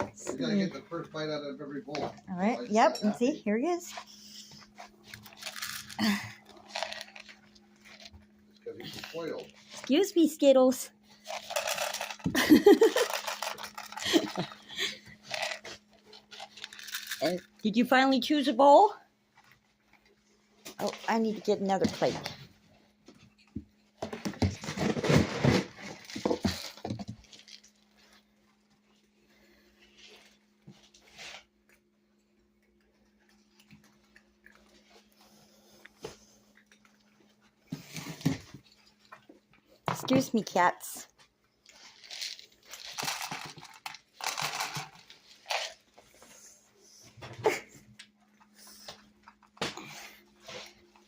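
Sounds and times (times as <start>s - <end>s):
packaging crinkling and rustling: 41.7s - 45.9s.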